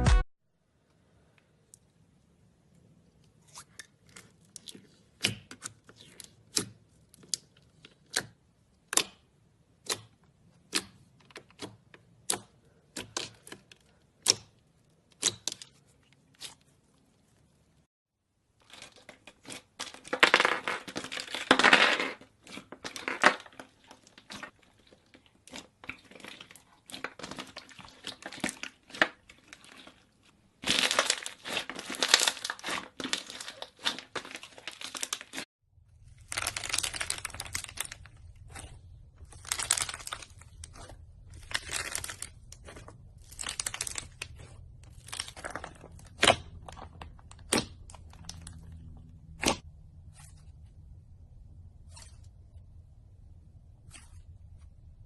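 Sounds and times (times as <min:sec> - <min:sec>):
slime crackling and popping: 0:22.4 - 0:35.4, 0:36.0 - 0:48.7.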